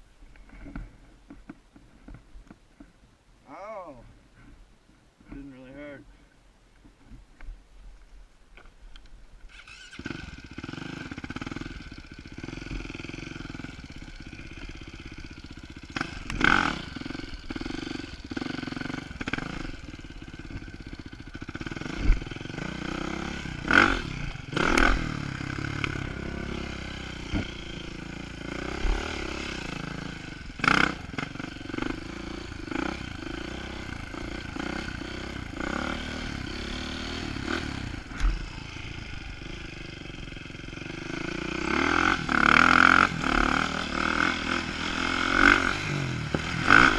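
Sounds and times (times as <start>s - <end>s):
dirt bike engine revving: 9.5s - 46.9s.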